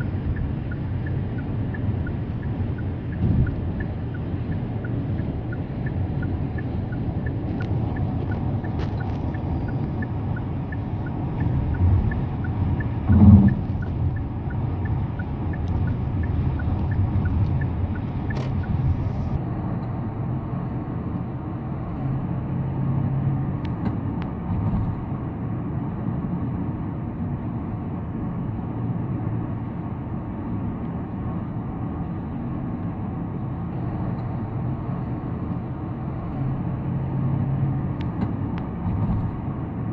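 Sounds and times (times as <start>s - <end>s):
light regular tick: 0.0s - 19.9s
road and tyre rumble: 0.0s - 39.9s.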